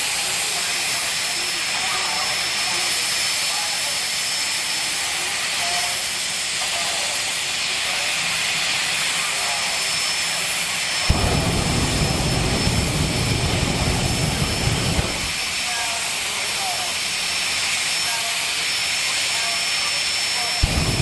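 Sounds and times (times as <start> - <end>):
turbine engine whine and hiss: 0.0 - 21.0
loud crackling rumble: 11.1 - 15.6, 20.6 - 21.0.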